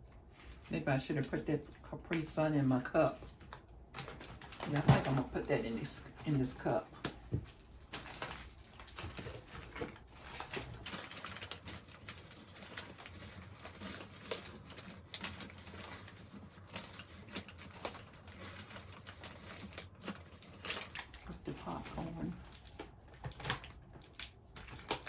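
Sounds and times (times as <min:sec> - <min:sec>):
plastic packaging crinkling: 0:00.1 - 0:25.0.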